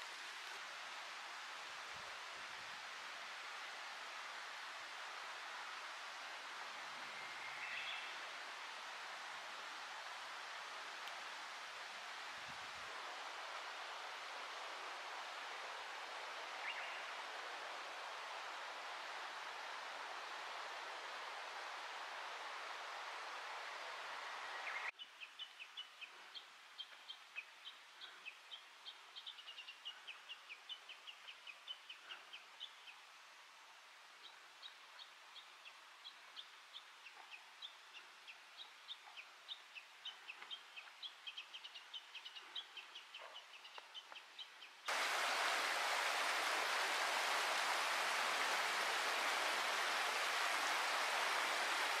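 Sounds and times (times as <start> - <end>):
mountain stream rushing: 0.0 - 24.9, 44.8 - 52.0
songbird chirping: 34.2 - 52.0.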